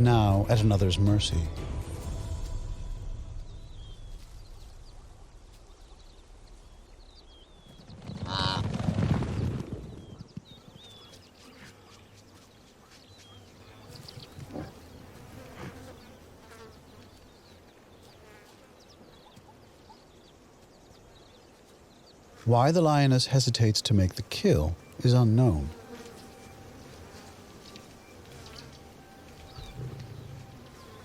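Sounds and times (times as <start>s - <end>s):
faint insect buzzing: 11.3s - 19.1s, 24.7s - 31.0s.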